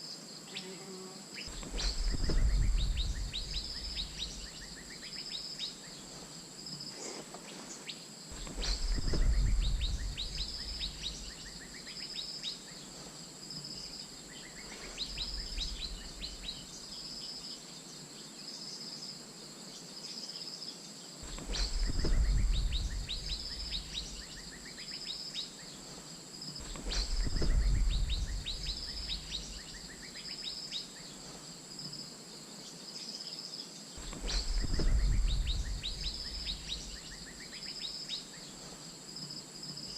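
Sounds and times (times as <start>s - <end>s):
low rumbles: 1.5s - 4.8s, 8.4s - 11.6s, 15.0s - 16.6s, 21.2s - 24.5s, 26.6s - 29.8s, 34.0s - 37.4s.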